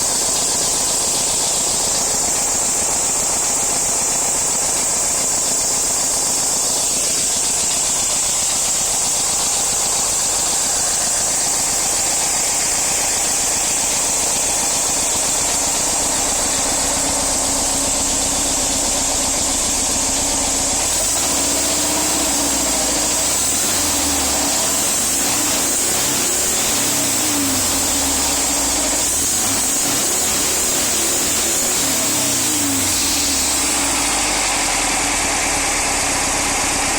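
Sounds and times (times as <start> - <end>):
van engine and exhaust revving: 0.0 - 36.9.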